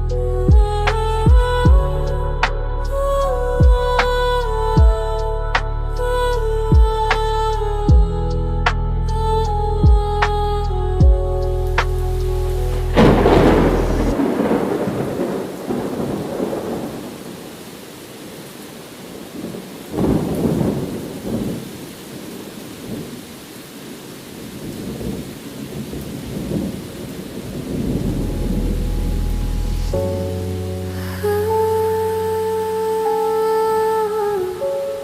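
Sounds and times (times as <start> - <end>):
rain falling: 9.1 - 35.0
rolling thunder: 11.0 - 17.7, 19.3 - 23.2, 24.6 - 31.2.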